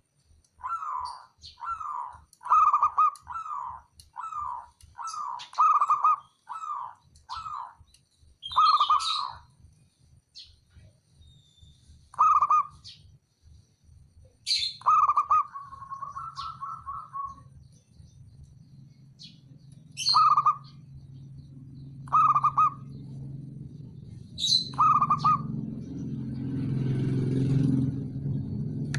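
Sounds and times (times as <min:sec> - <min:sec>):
low hum: 0:00.0 - 0:28.9
dove cooing: 0:00.6 - 0:07.8, 0:08.5 - 0:09.4, 0:12.1 - 0:12.9, 0:14.5 - 0:17.5, 0:19.9 - 0:20.9, 0:22.0 - 0:23.8, 0:24.4 - 0:25.8.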